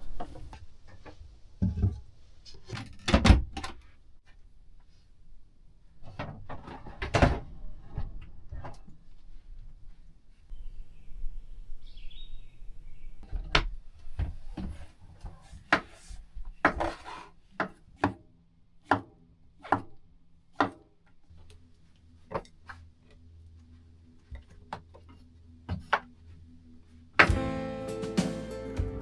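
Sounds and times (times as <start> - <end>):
knife chopping on wooden board: 20.6 - 20.8.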